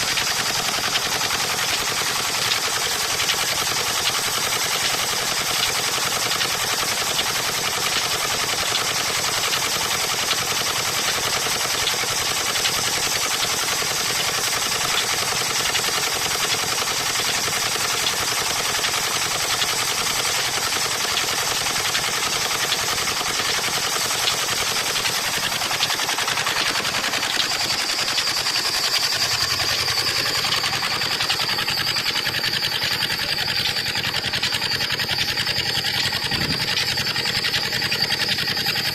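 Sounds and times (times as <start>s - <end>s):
steady high whine: 17.2s - 38.9s.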